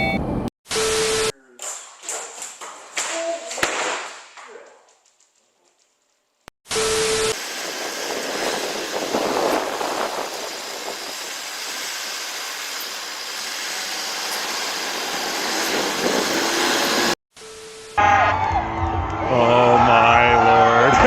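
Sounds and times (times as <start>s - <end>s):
rushing vehicle noise: 7.3s - 17.2s.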